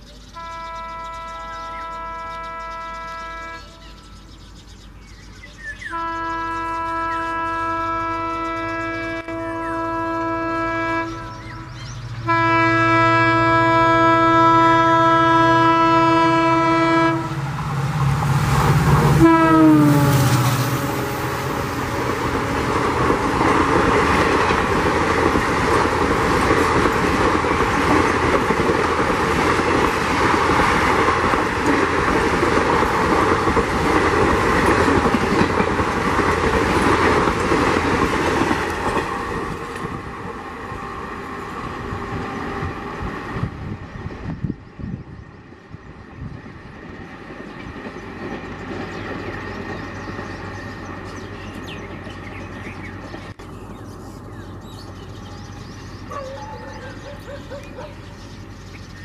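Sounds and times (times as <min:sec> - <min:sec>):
locomotive air horn: 0:00.4 - 0:04.2, 0:05.8 - 0:17.4, 0:19.1 - 0:21.8
locomotive engine passing: 0:00.7 - 0:59.0.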